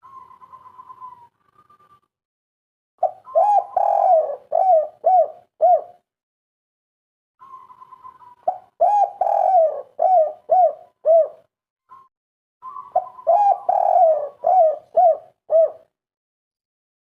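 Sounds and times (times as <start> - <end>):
dove cooing: 3.0 - 6.1, 7.4 - 11.5, 12.6 - 15.9.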